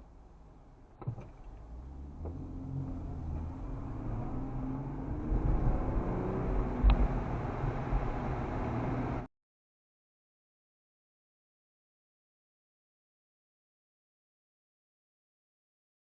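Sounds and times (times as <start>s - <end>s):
road noise: 0.0s - 9.3s
car engine accelerating: 1.0s - 9.3s.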